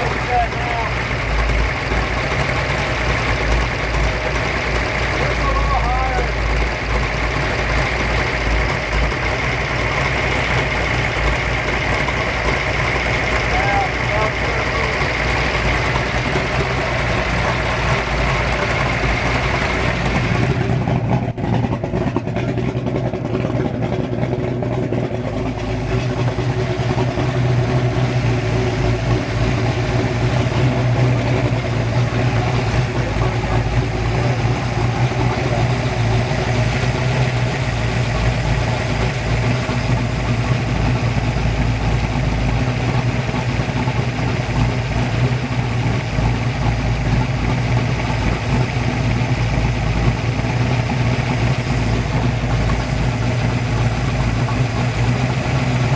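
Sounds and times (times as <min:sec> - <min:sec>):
boat engine idling: 0:00.0 - 0:55.9.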